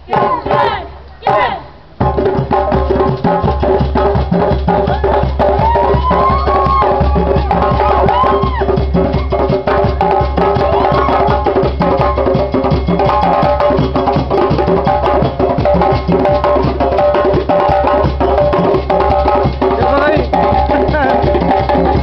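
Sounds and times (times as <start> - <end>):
fast hand drums: 0.0 - 22.0
sharp woodblock strikes: 9.0 - 22.0.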